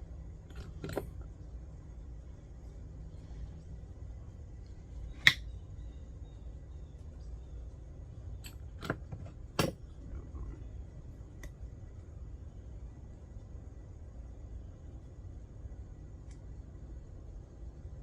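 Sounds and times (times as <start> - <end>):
sharp metallic click: 5.2 - 5.5.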